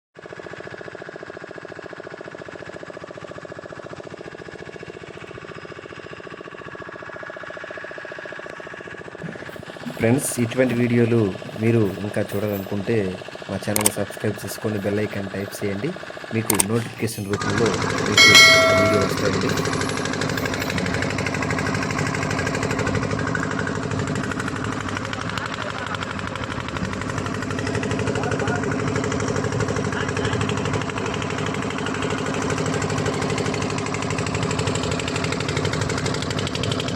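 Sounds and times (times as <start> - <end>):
boat engine chugging: 7.6 - 36.9.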